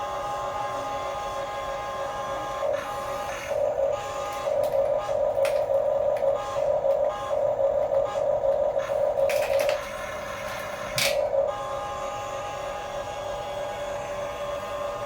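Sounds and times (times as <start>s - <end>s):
toy electric motor whining: 0.0s - 15.0s
plastic clicks: 4.3s - 7.1s, 9.2s - 11.3s.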